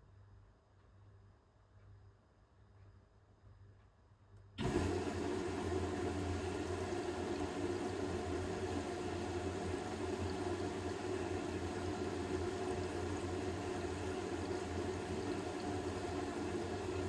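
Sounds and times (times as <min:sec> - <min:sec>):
washing machine hum: 0:04.6 - 0:17.0
water rushing: 0:04.6 - 0:17.0.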